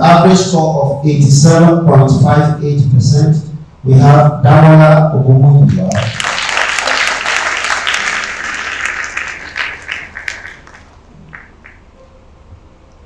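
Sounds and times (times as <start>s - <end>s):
audience applauding: 5.9s - 11.9s.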